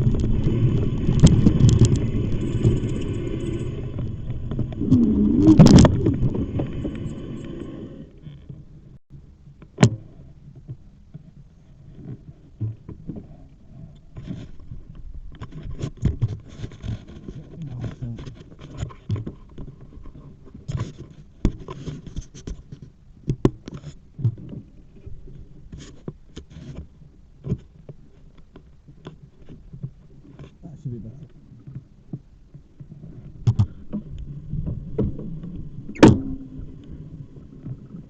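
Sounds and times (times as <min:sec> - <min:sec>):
low rumble: 0:00.0 - 0:09.5, 0:32.9 - 0:38.0.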